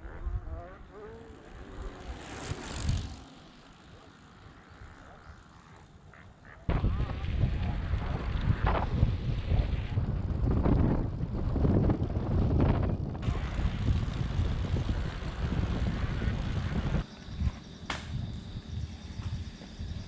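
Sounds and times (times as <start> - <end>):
wind buffeting microphone: 6.7 - 20.0.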